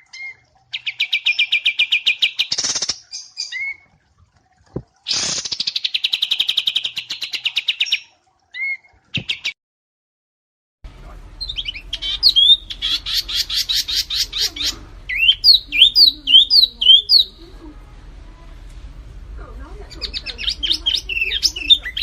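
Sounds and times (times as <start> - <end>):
songbird chirps: 0.0 - 4.0, 10.9 - 22.0
songbird fast trill: 11.4 - 17.4, 20.0 - 22.0.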